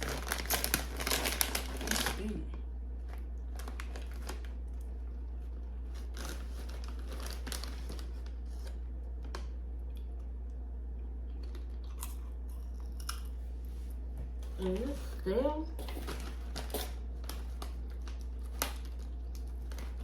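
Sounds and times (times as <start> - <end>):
snack bag crinkling: 0.0 - 9.6, 15.8 - 20.0
popcorn being chewed: 0.0 - 20.0.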